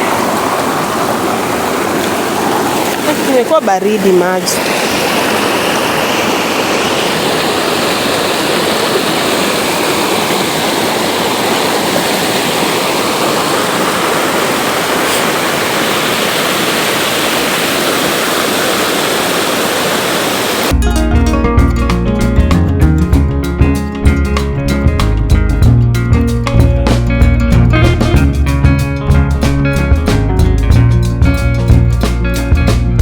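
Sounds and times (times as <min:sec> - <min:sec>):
waterfall rushing and splashing: 0:00.0 - 0:20.7
music with guitar and drums: 0:20.7 - 0:33.0.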